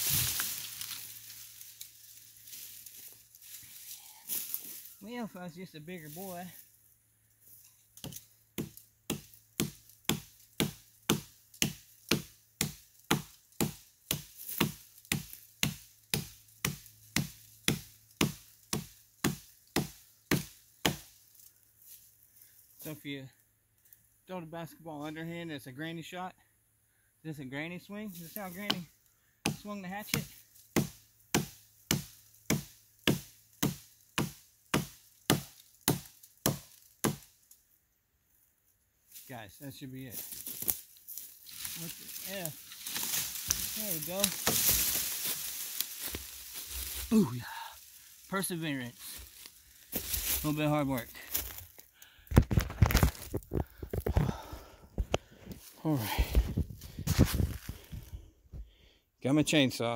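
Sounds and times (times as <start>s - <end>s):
hatchet chopping wood: 8.0s - 21.2s, 28.6s - 37.4s, 41.5s - 47.0s.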